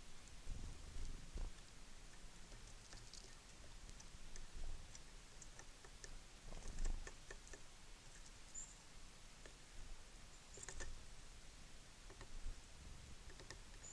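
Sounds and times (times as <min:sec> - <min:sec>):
birds pecking and shuffling: 0:00.0 - 0:11.4, 0:12.0 - 0:13.9
bird chirp: 0:08.2 - 0:08.9.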